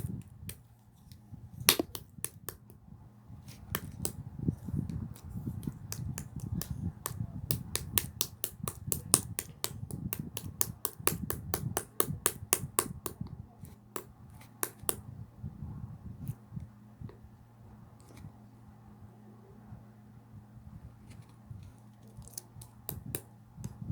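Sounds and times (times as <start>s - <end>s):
slime clicking and popping: 1.7s - 2.7s, 7.5s - 13.1s, 22.6s - 23.2s.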